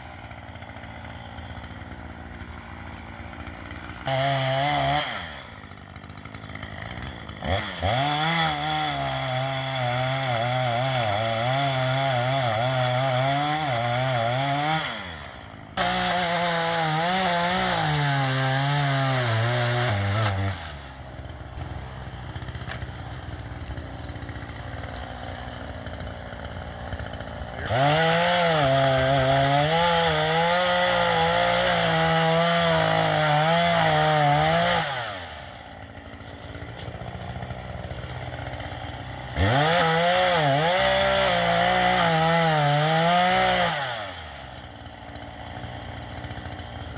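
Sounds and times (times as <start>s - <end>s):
chainsaw cutting into tree: 0.0s - 46.9s.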